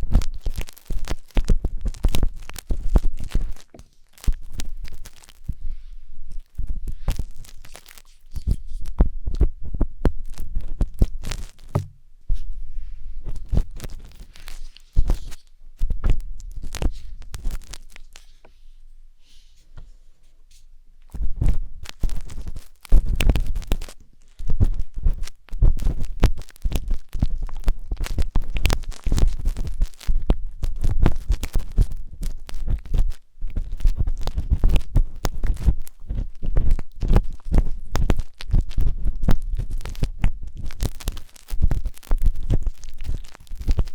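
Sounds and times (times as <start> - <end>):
skewer scraping in microphone ear: 0.0 - 9.4, 10.4 - 18.6.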